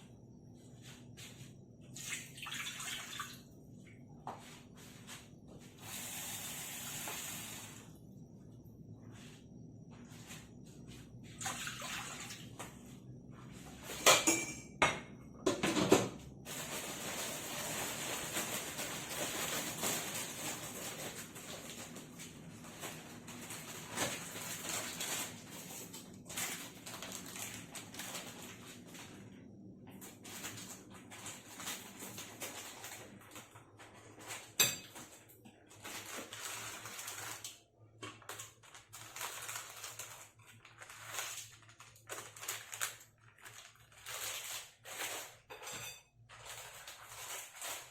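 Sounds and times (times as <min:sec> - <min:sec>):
water running: 0:01.9 - 0:03.5, 0:11.4 - 0:12.7
metal cookware clanking: 0:14.0 - 0:15.9, 0:34.6 - 0:35.1.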